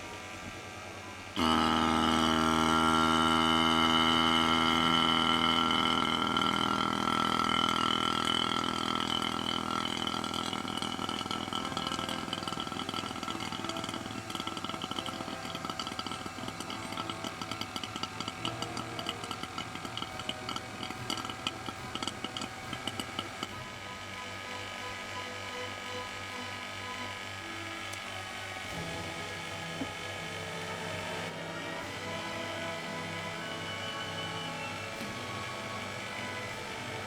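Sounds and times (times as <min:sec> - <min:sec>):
small motor running: 0:00.0 - 0:37.0.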